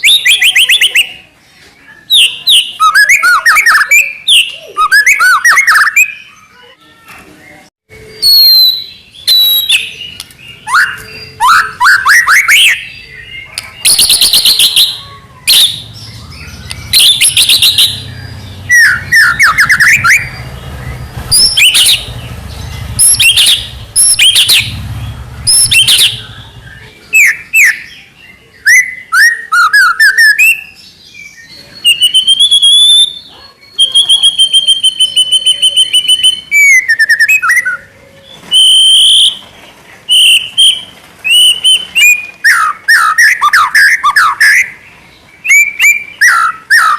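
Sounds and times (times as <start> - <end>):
songbird singing: 0.0 - 46.9
long held bird whistles: 8.0 - 13.2, 13.8 - 18.0, 31.5 - 37.9, 38.5 - 39.4, 40.1 - 44.8, 45.4 - 46.9
fast stuttering bird rattles: 15.9 - 26.8.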